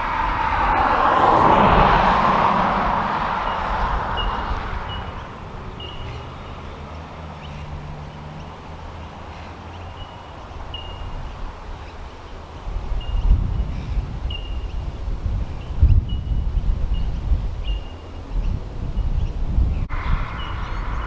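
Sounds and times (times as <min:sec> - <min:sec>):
wind on microphone: 0:00.0 - 0:09.6, 0:10.4 - 0:21.0
bird chirping: 0:03.5 - 0:12.4, 0:13.0 - 0:14.9, 0:15.5 - 0:21.0.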